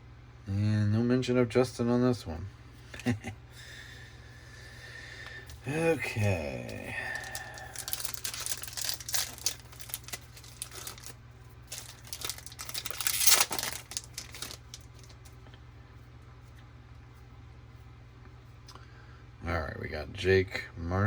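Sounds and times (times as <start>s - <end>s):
plastic wrapper tearing and crinkling: 5.5s - 15.3s.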